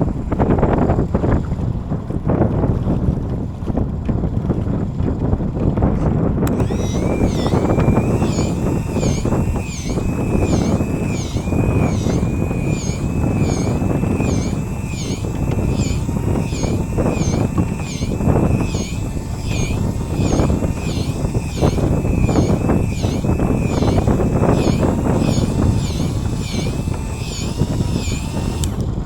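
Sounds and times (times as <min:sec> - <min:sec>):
boat engine rumble: 0:00.0 - 0:05.8, 0:06.4 - 0:29.0
wind buffeting the microphone: 0:00.0 - 0:29.0
high warbling whine: 0:06.5 - 0:28.8.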